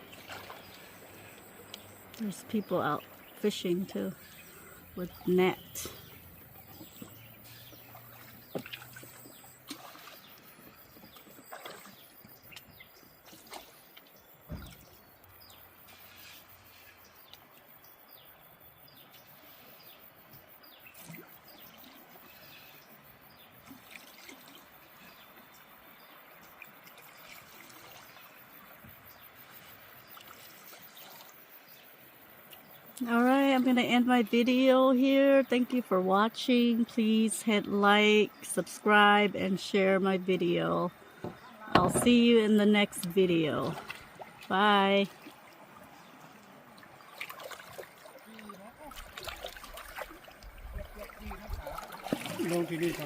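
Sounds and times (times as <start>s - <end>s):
river water trickling and splashing: 0.0s - 53.0s
small knocks: 41.2s - 42.2s.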